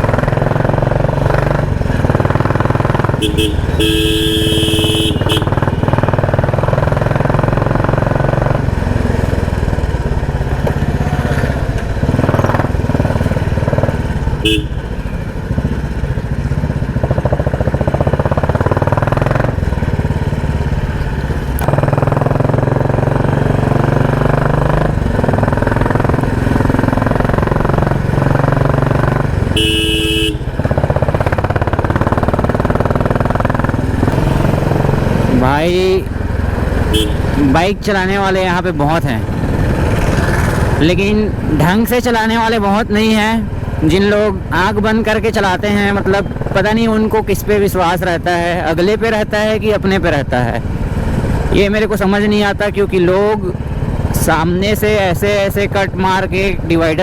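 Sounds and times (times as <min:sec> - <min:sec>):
motorcycle engine revving: 0:00.0 - 0:57.0
vehicle horn honking: 0:03.1 - 0:06.0, 0:14.4 - 0:15.2, 0:29.5 - 0:30.6, 0:36.8 - 0:37.4.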